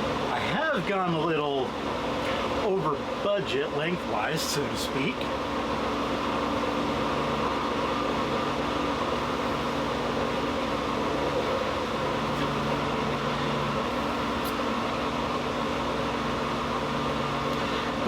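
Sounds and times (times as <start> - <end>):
low hum: 4.0 - 18.0.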